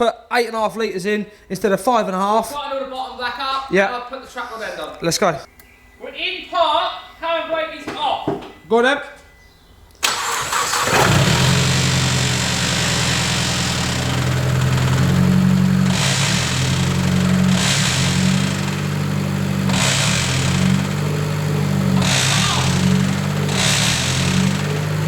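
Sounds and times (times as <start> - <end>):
car engine humming: 10.0 - 25.0.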